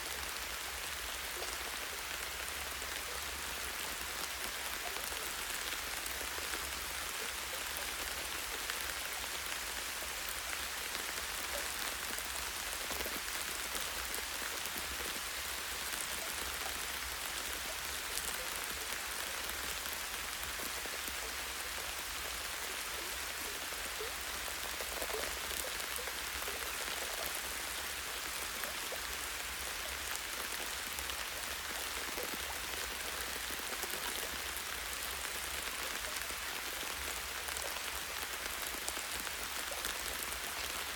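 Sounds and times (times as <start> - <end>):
light rain on foliage: 0.0 - 40.9.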